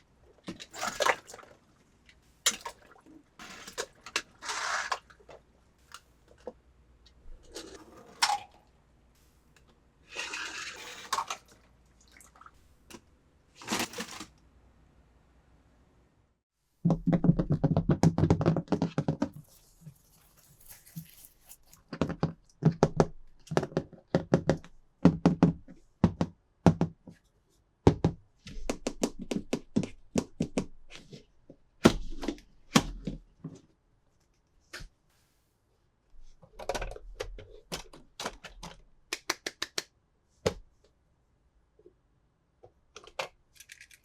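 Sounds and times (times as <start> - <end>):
plastic pieces clattering: 19.4 - 21.8, 43.5 - 44.0.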